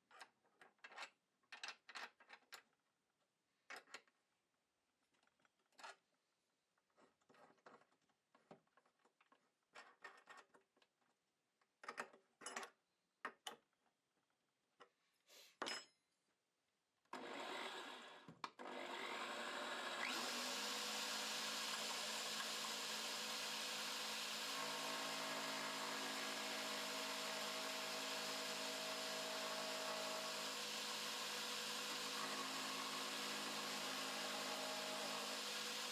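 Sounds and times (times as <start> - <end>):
electric drill driving wood lathe: 17.2 - 35.9.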